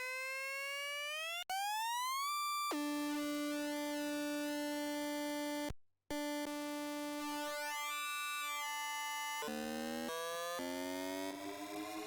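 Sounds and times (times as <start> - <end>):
synthesized riser tone: 10.9 - 12.0.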